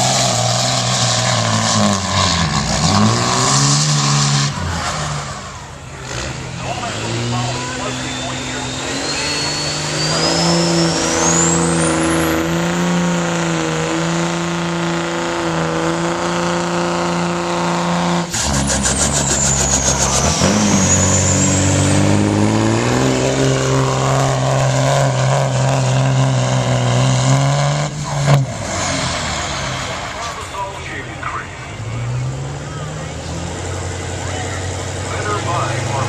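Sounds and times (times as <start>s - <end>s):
diesel engine pulling under load: 0.0s - 36.0s
turbo whistle: 7.9s - 12.5s.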